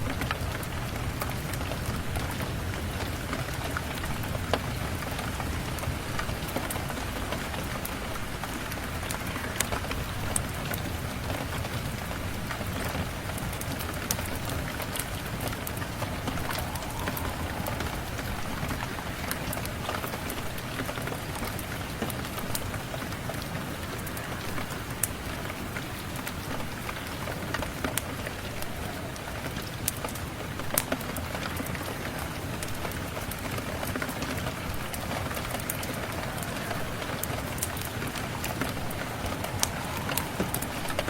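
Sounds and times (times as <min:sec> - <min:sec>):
steady rain falling: 0:00.0 - 0:41.0
wood fire crackling and popping: 0:12.4 - 0:41.0.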